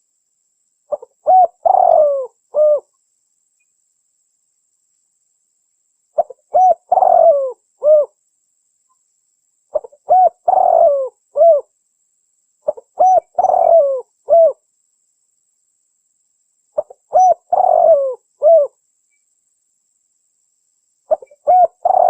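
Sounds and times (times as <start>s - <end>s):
dove cooing: 0.9s - 2.9s, 6.2s - 8.2s, 9.7s - 11.7s, 12.7s - 14.6s, 16.8s - 18.8s, 21.1s - 22.0s.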